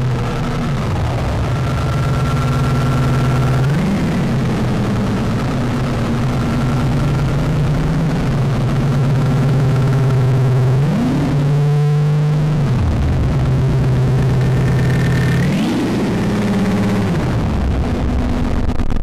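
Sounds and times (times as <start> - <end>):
gritty low synthesizer drone: 0.0 - 19.0.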